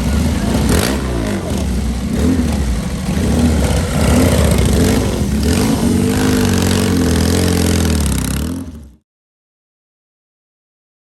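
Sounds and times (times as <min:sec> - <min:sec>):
vehicle engine running: 0:00.0 - 0:09.0.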